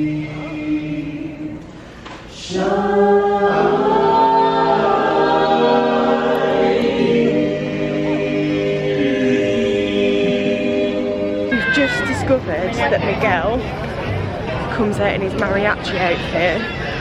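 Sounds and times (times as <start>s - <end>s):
a cappella choir singing: 0.0s - 13.2s.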